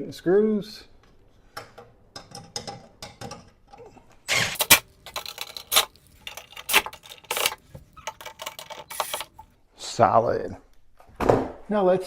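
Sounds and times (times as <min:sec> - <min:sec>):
short scraping bursts: 0:04.3 - 0:09.4
metal hardware clicks and rattles: 0:04.6 - 0:09.4.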